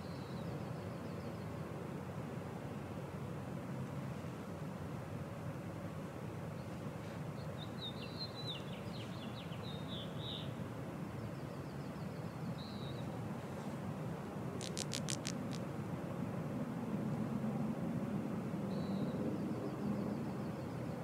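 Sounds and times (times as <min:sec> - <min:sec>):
outdoor background noise: 0:00.0 - 0:21.0
songbird singing: 0:07.4 - 0:10.6, 0:11.2 - 0:13.2, 0:14.6 - 0:15.6, 0:18.7 - 0:21.0
rapid bird trill: 0:14.6 - 0:15.6.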